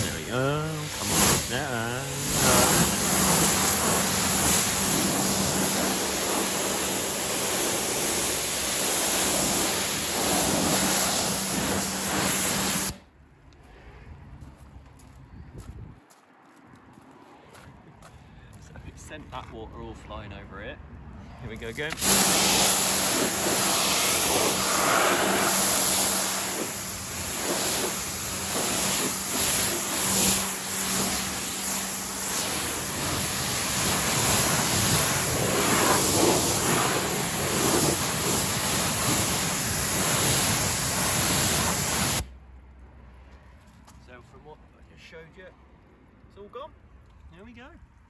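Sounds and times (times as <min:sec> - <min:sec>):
pressure washer spraying water: 0:00.0 - 0:13.0, 0:21.9 - 0:42.3.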